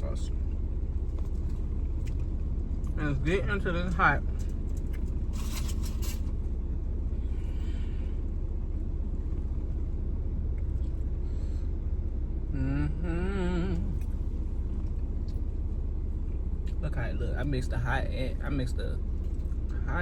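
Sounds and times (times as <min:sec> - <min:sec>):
low engine rumble: 0:00.0 - 0:20.0
person humming: 0:12.5 - 0:14.1.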